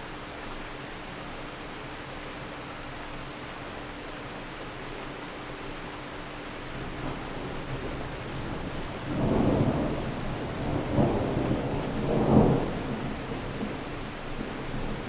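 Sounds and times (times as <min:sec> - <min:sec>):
steady rain: 0:00.0 - 0:15.0
rolling thunder: 0:07.0 - 0:15.0.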